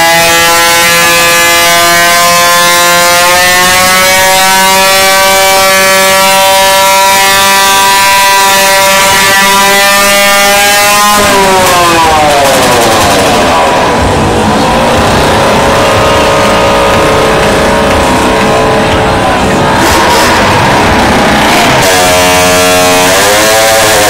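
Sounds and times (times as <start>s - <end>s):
motorcycle engine revving high: 0.0s - 24.0s.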